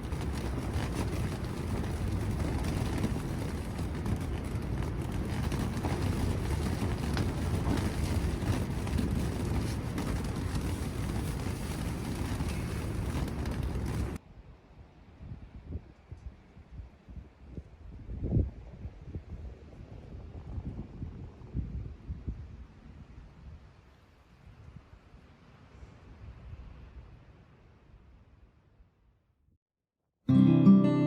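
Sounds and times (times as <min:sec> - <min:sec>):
strong wind buffeting microphone: 0:00.0 - 0:14.2, 0:15.2 - 0:25.1.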